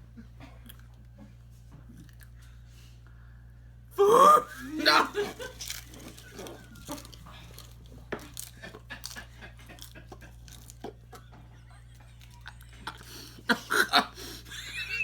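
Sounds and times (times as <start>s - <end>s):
person chewing crunchy food: 1.9s - 2.4s, 4.6s - 11.2s.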